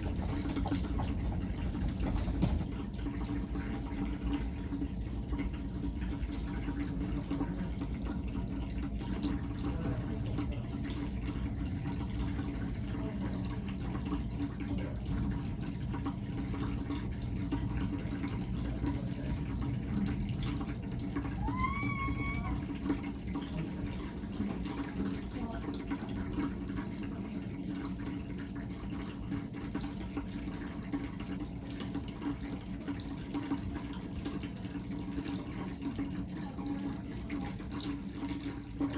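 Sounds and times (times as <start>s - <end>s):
low pump hum: 0.0s - 38.9s
water trickling: 0.0s - 38.9s
cat meowing: 21.4s - 22.7s.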